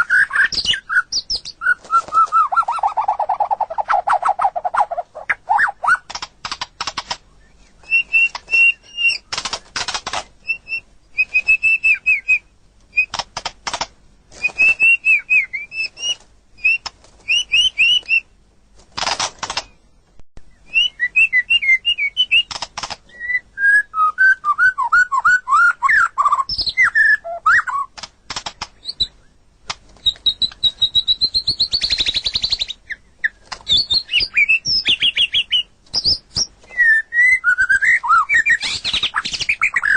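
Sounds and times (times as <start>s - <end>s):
bird singing varied song: 0.0s - 13.2s, 14.3s - 18.4s, 19.4s - 39.9s.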